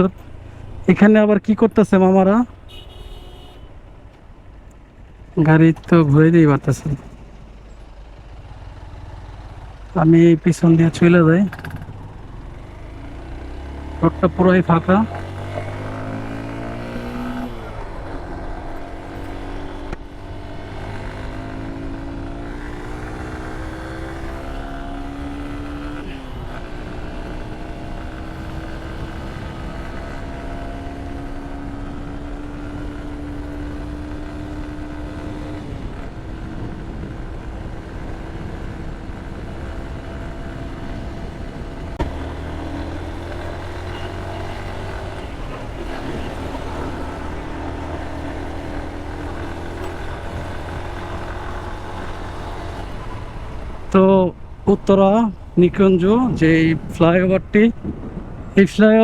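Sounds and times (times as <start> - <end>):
road and wind noise: 0.0 - 59.0
motorcycle engine changing gears: 4.0 - 58.6.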